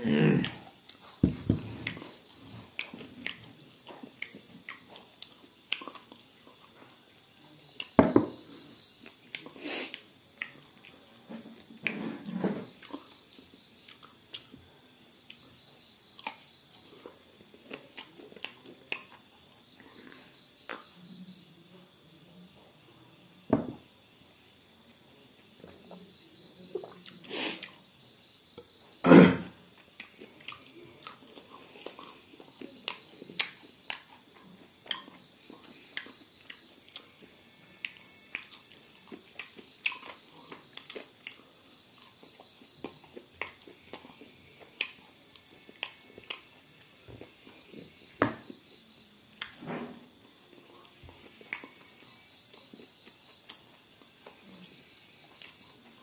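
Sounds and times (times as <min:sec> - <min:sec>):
chewing and biting: 0:00.4 - 0:14.6, 0:15.3 - 0:21.0, 0:29.8 - 0:48.6, 0:49.4 - 0:56.0
loud thump: 0:23.5 - 0:23.8.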